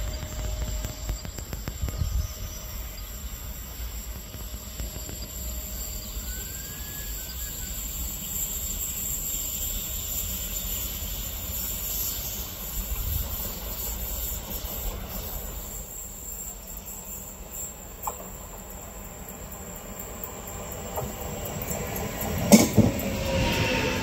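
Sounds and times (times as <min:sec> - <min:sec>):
faint wheel squeal: 0:00.0 - 0:18.3
train rumble and hiss: 0:00.0 - 0:24.0.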